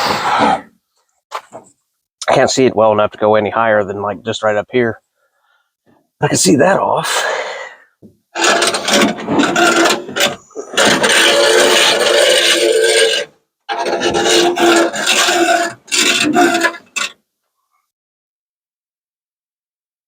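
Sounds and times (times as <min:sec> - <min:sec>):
window glass scraping in channel: 0:08.4 - 0:17.2.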